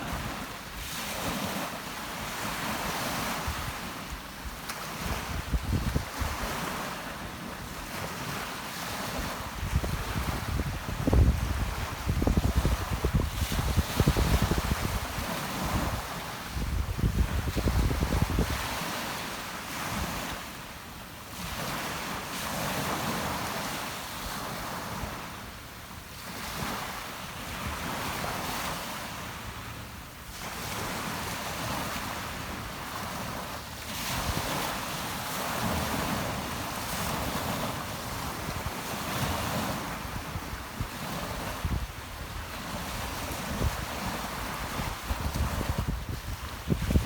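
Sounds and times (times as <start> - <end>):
waves breaking on shore: 0.0 - 47.0
wind gusting on microphone: 4.9 - 6.8, 9.0 - 19.1, 37.0 - 47.0.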